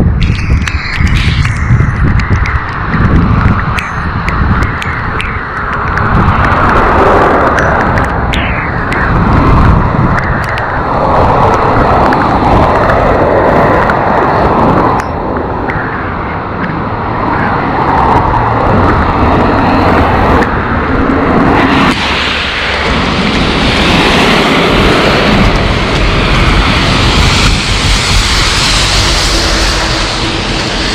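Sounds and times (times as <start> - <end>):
road traffic noise: 0.0 - 30.9
wind rumbling on microphone: 0.0 - 30.9
bright hiss of tyres: 22.0 - 23.9, 26.1 - 30.9.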